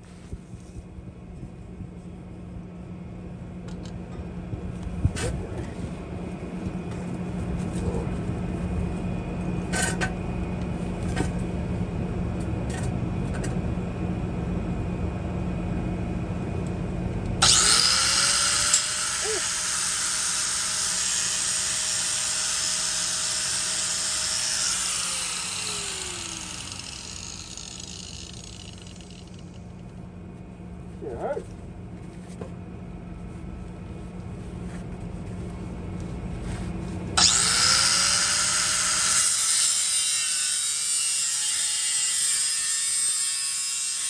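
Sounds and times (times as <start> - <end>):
power tool spinning with hiss: 17.4 - 29.6, 37.2 - 42.0.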